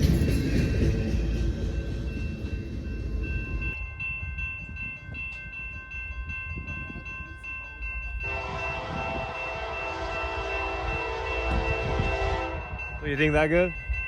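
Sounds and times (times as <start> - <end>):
low train rumble: 0.0 - 14.0
locomotive air horn chord: 8.2 - 12.8.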